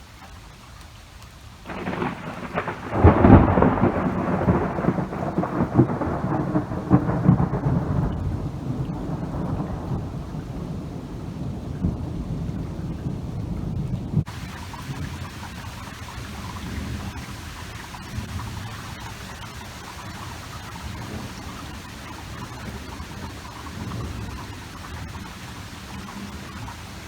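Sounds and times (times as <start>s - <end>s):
rain falling: 0.0s - 27.0s
thunder rolling and crackling: 1.6s - 27.0s.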